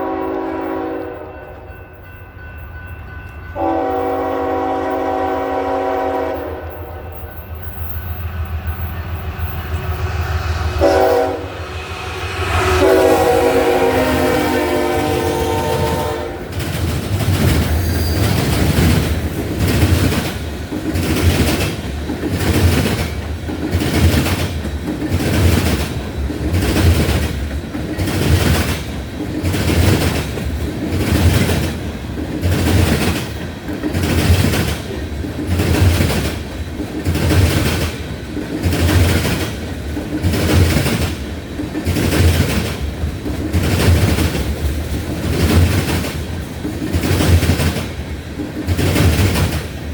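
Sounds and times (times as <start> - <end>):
train wheels clacking over rail joints: 12.8 - 49.9.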